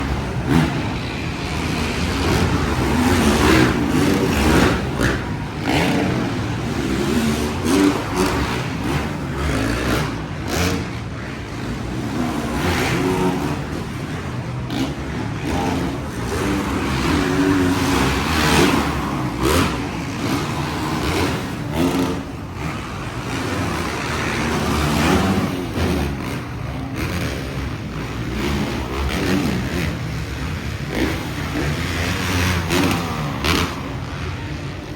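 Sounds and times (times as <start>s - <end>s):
dirt bike engines revving: 0.0s - 34.9s.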